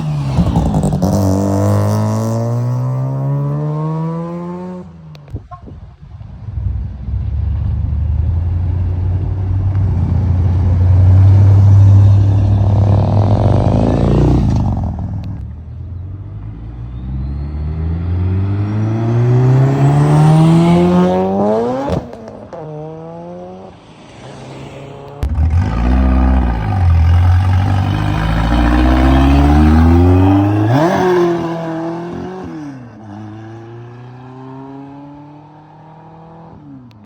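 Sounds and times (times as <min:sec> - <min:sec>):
car engines accelerating: 0:06.3 - 0:37.0
car passing by: 0:16.8 - 0:36.6
car engine revving hard: 0:25.2 - 0:32.6.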